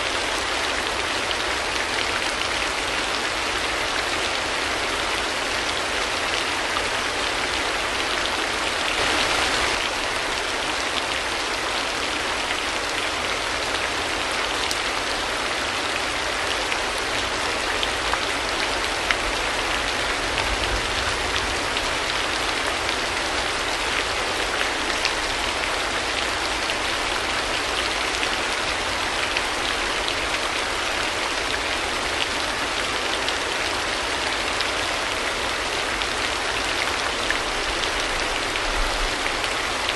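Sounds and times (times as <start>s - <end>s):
rain hissing: 8.4s - 10.4s.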